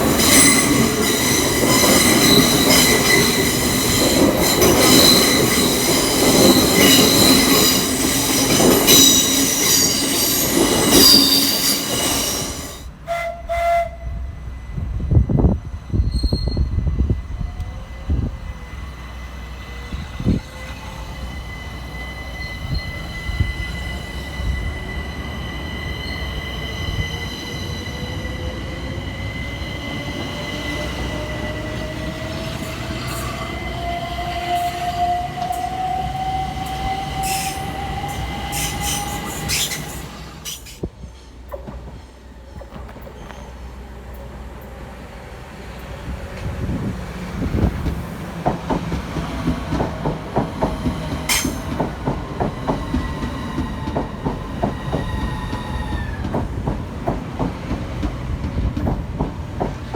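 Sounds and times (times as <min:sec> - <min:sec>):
train rumbling: 0:00.0 - 0:59.9
wheel squeal: 0:00.2 - 0:12.8, 0:16.0 - 0:16.8, 0:34.6 - 0:41.2.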